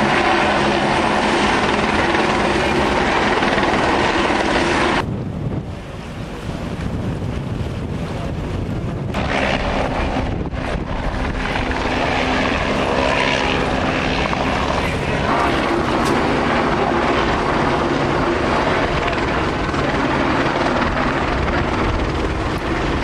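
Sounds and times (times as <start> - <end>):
helicopter flying: 0.0 - 23.0.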